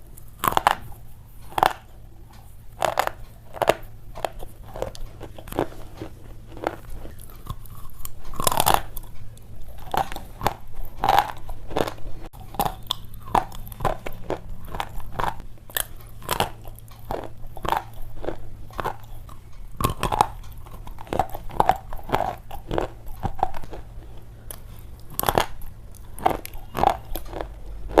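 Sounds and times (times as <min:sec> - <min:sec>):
pencil being chewed crunching: 0:00.1 - 0:28.0.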